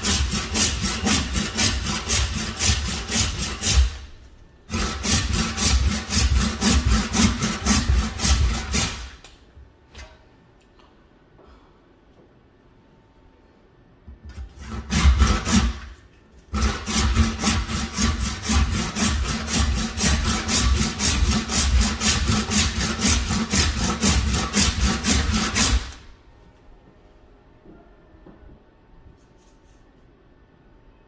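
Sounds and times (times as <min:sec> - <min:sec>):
hand saw cutting through bone: 0:00.0 - 0:04.0, 0:04.7 - 0:09.0, 0:14.6 - 0:15.8, 0:16.5 - 0:26.0.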